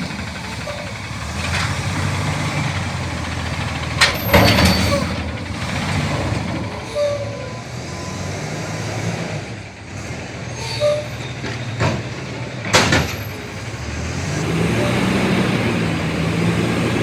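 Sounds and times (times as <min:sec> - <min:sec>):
garbage truck engine running: 0:00.0 - 0:17.0
brief squeals: 0:04.2 - 0:05.2, 0:10.6 - 0:11.7.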